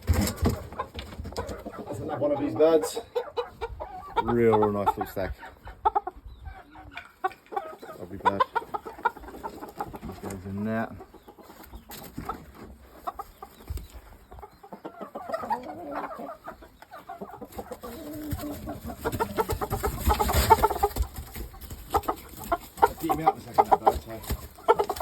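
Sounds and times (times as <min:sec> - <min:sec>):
chickens clucking: 0:00.0 - 0:25.0
rustling and knocking: 0:17.5 - 0:25.0.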